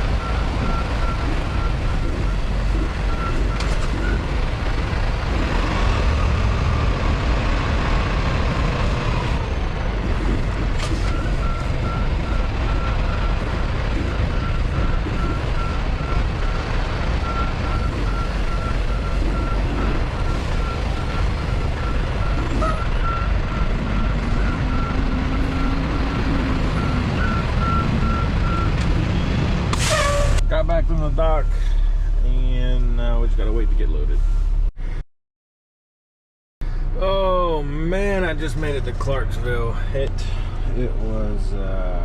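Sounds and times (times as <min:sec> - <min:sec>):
truck backup alarm beeping: 0:00.0 - 0:08.2, 0:10.8 - 0:32.2
diesel truck engine rumble: 0:00.0 - 0:35.0, 0:36.6 - 0:42.0.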